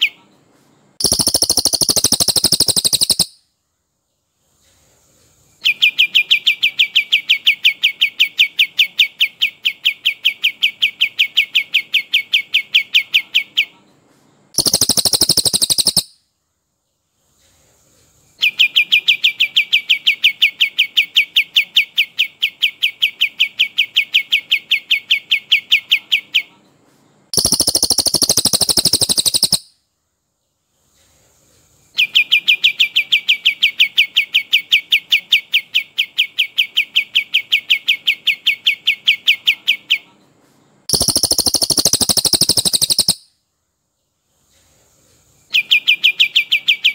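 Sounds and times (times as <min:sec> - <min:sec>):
higher dense bird trill: 0:01.0 - 0:03.5, 0:14.6 - 0:16.2, 0:27.4 - 0:29.8, 0:40.9 - 0:43.4.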